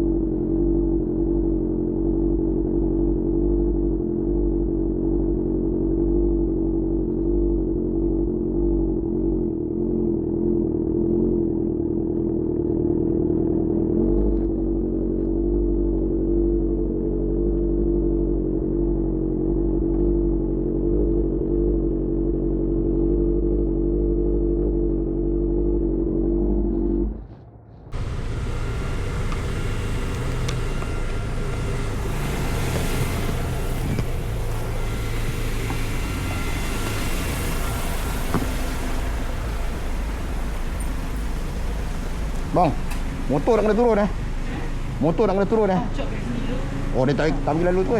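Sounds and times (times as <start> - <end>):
muffled engine running: 0.0 - 47.9
road and wind noise: 0.0 - 47.9.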